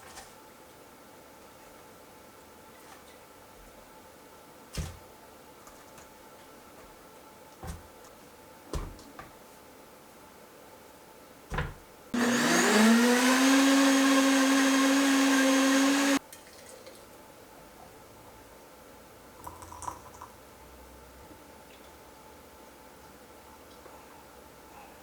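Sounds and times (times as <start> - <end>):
electric blender whining: 12.2 - 16.2.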